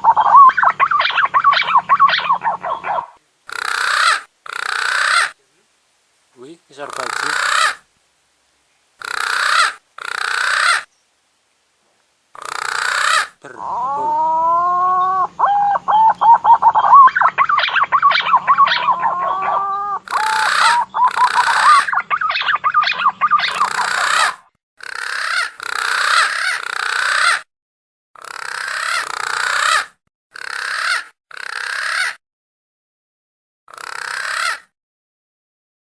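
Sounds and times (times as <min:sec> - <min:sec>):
harsh bird call bursts: 0:00.0 - 0:05.4, 0:06.8 - 0:07.9, 0:09.0 - 0:10.9, 0:12.4 - 0:27.4.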